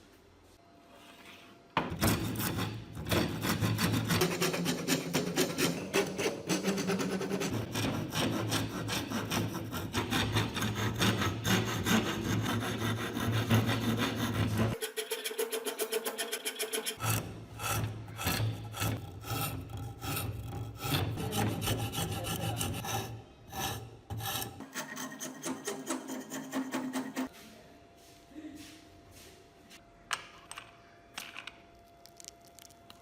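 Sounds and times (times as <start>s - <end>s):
hand file rasping strokes: 2.1s - 27.3s.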